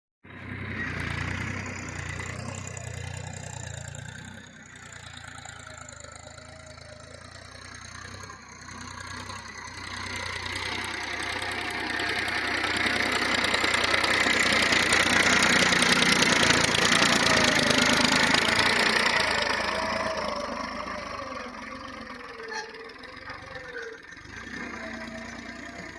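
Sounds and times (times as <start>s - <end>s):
tractor diesel engine running: 0.2s - 25.9s.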